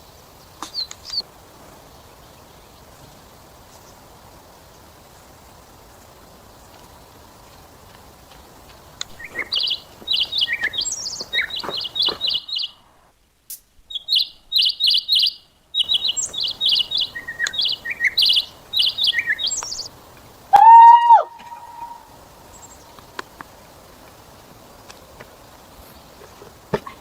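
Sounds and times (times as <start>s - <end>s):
birds chirping: 0.0s - 12.9s, 13.9s - 23.4s.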